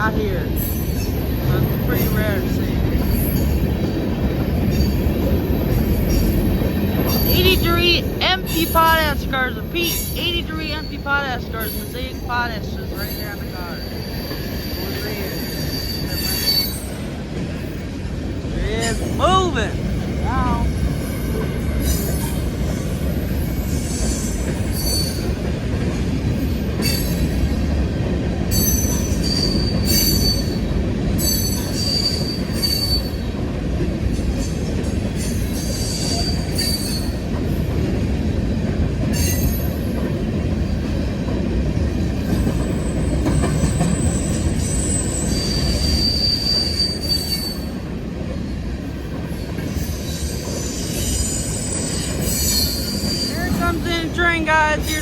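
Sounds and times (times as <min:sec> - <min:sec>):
train wheels rumbling on rail: 0:00.0 - 0:55.0
train wheels squealing: 0:00.3 - 0:07.8, 0:09.8 - 0:17.9, 0:20.7 - 0:25.6, 0:26.4 - 0:27.7, 0:28.5 - 0:33.4, 0:34.2 - 0:37.7, 0:39.1 - 0:40.0, 0:42.2 - 0:53.7.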